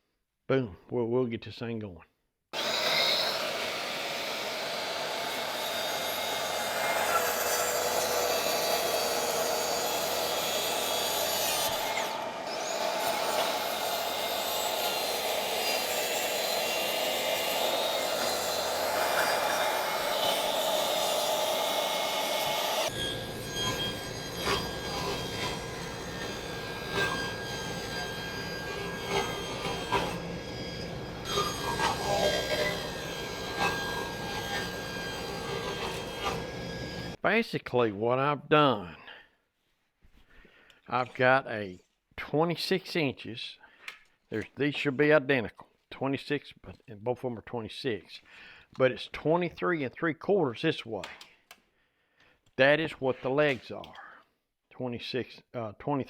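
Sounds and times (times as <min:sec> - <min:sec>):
saw cutting through plywood: 0:02.6 - 0:37.2.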